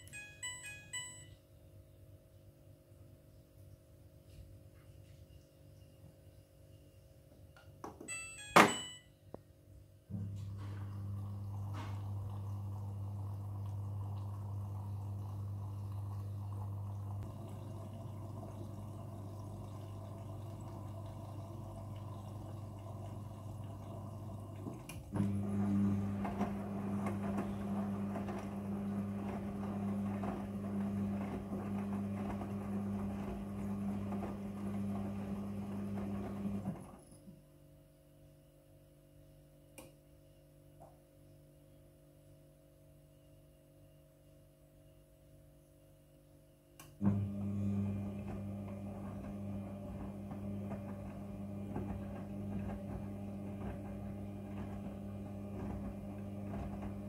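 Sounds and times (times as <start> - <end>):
water rushing into washing machine: 10.1 - 37.0, 47.0 - 57.0
washing machine inlet valve hum: 10.1 - 37.2, 46.7 - 57.0.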